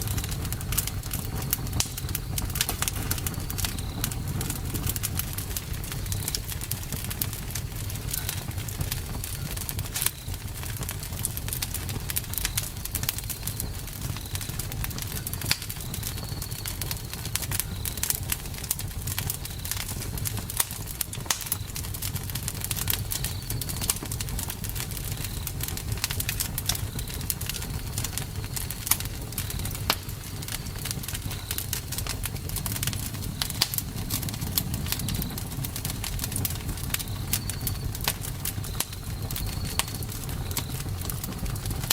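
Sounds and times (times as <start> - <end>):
campfire crackling and popping: 0.0 - 41.9
low rumble of burning fire: 0.0 - 41.9
faint high chirps: 32.7 - 40.9.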